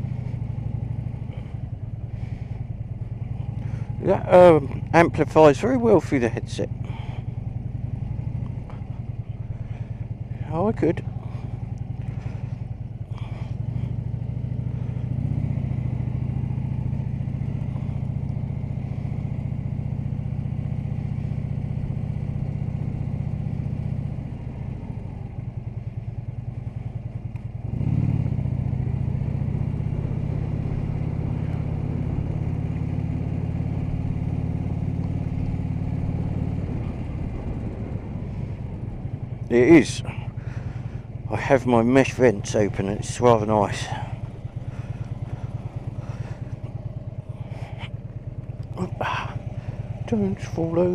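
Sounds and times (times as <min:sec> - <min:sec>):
motorcycle engine cruising: 0:00.0 - 0:50.9.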